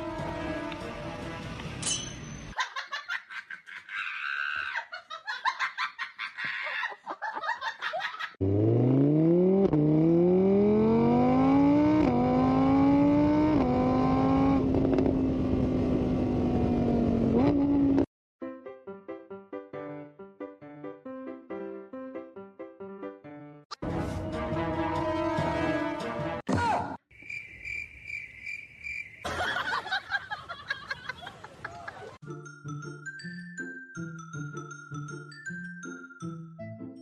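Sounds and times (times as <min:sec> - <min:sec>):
vehicle engine accelerating: 0:08.4 - 0:18.1.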